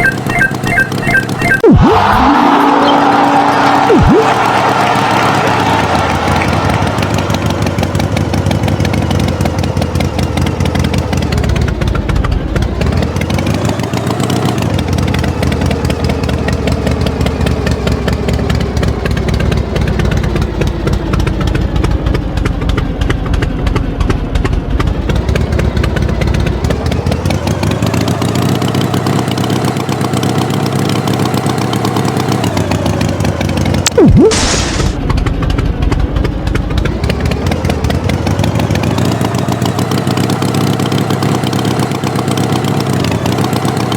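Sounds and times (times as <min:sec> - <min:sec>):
engine revving: 0:00.0 - 0:23.8, 0:24.4 - 0:43.9
loud sharp sound: 0:33.9 - 0:35.0.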